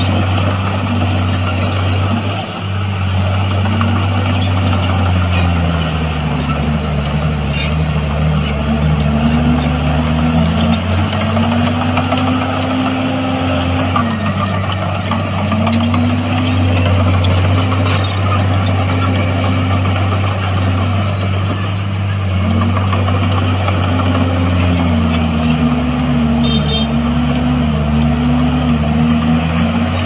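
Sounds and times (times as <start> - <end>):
heavy machinery diesel engine running: 0.0 - 30.0.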